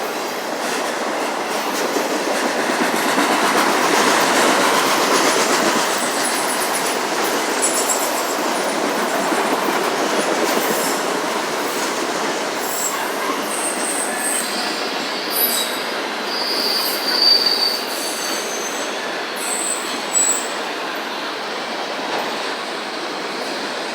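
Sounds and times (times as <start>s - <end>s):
steel wheels rumbling on rail: 0.0s - 23.9s
high-pitched wheel squeals: 12.7s - 20.6s.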